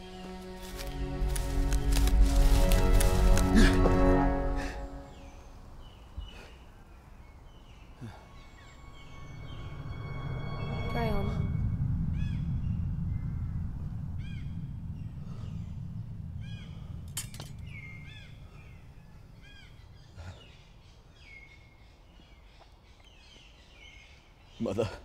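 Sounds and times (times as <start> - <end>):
deep low rumble: 0.0 - 6.0, 8.4 - 21.2
birds chirping: 0.0 - 25.0.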